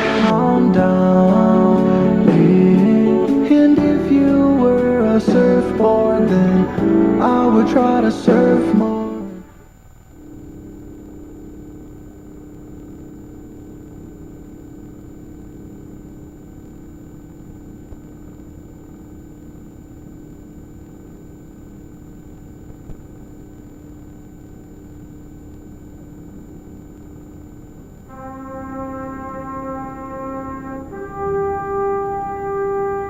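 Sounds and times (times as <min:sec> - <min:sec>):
helicopter cabin drone: 0:00.0 - 0:09.1.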